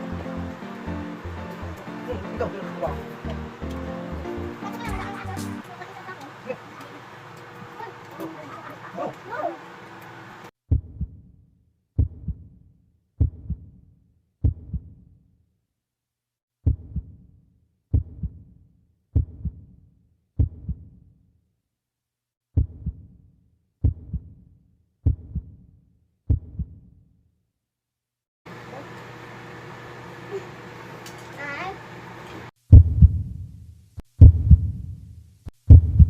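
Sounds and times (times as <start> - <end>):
heartbeat thumps: 10.7 - 11.2, 12.0 - 12.5, 13.2 - 13.7, 14.4 - 15.0, 16.6 - 17.1, 17.9 - 18.4, 19.2 - 19.6, 20.4 - 20.9, 22.6 - 23.0, 23.8 - 24.3, 25.0 - 25.6, 26.3 - 26.8, 32.7 - 35.1, 35.7 - 36.0.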